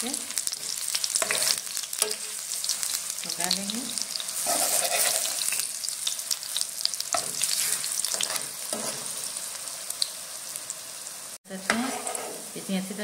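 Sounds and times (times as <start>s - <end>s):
batter sizzling in hot oil: 0.0s - 13.0s
metal spoon scraping a pan: 0.5s - 2.9s, 4.3s - 5.8s, 7.1s - 9.2s, 11.7s - 12.5s.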